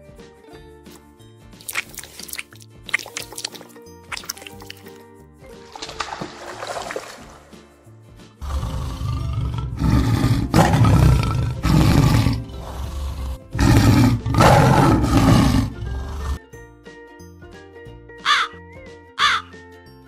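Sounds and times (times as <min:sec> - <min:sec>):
background music: 0:00.0 - 0:20.0
tiger roaring: 0:08.4 - 0:16.4.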